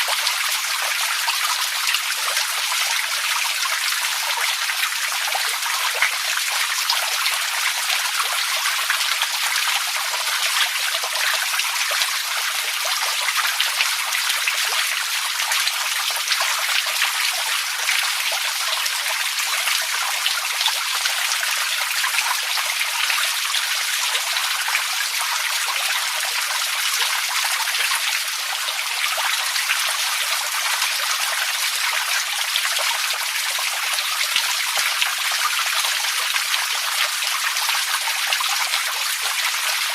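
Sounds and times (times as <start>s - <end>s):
running water trickling and splashing: 0.0s - 39.9s.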